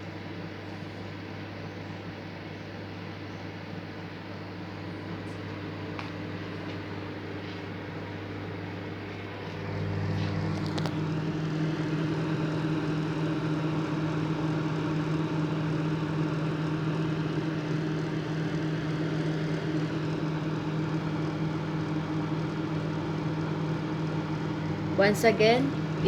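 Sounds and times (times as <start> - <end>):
microwave oven humming: 0.0 - 26.0.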